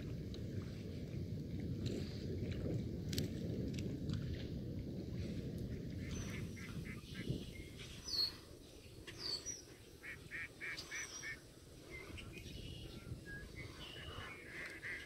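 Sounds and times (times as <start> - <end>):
birds calling: 6.0 - 15.0.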